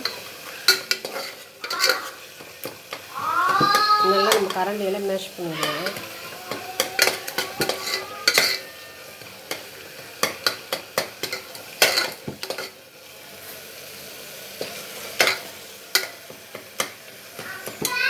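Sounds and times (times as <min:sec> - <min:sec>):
frying sizzle: 0:00.0 - 0:18.0
ladle scraping and knocking pot: 0:00.1 - 0:04.6, 0:05.6 - 0:12.7.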